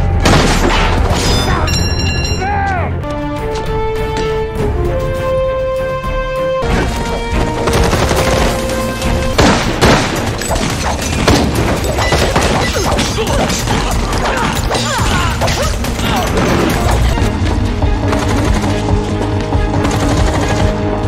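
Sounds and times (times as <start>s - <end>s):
action film music: 0.0s - 21.0s
gunfire-like bursts: 7.5s - 13.8s.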